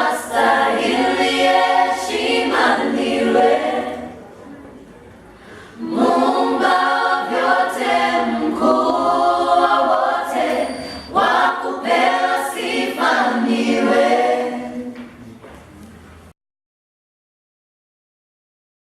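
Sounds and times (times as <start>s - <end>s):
vocal group singing in harmony: 0.0s - 4.4s, 5.5s - 15.1s.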